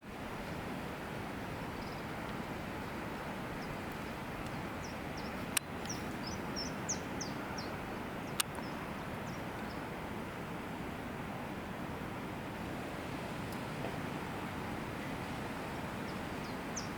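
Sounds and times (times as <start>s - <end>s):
small songbirds chirping: 1.7s - 2.1s, 2.8s - 9.8s, 16.0s - 16.9s.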